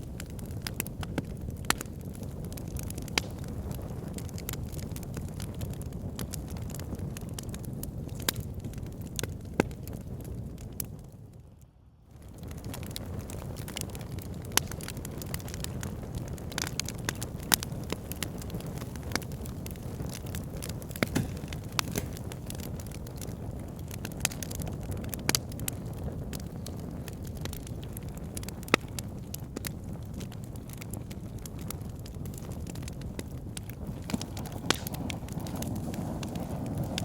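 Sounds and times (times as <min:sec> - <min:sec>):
fire crackling and popping: 0:00.0 - 0:37.0
fire low rush: 0:14.3 - 0:23.3, 0:31.5 - 0:37.0
loud wood snaps: 0:20.6 - 0:22.7, 0:33.6 - 0:37.0.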